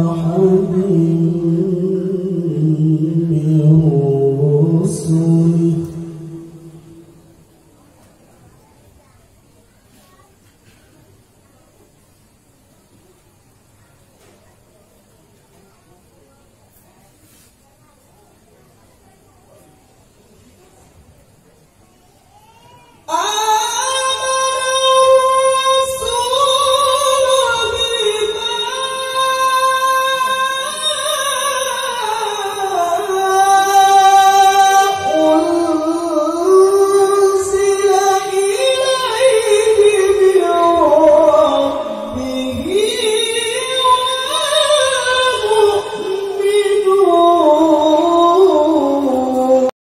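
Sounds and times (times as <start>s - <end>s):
man reciting melodically: 0.0s - 7.2s, 23.1s - 49.8s.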